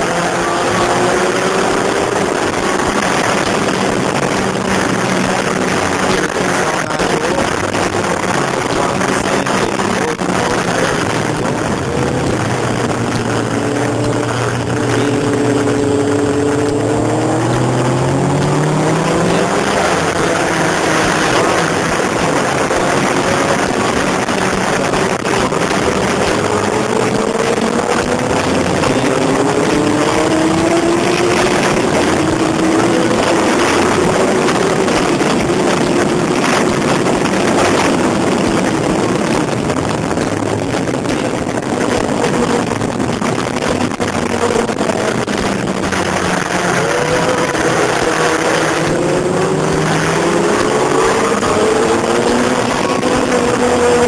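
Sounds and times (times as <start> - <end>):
motorcycle engine accelerating: 0.0 - 54.0
wind rush: 0.0 - 54.0.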